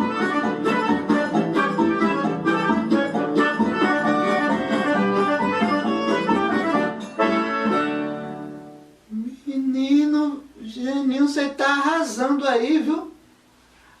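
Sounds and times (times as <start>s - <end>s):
percussion beat: 0.0s - 7.2s
accordion: 0.0s - 8.8s.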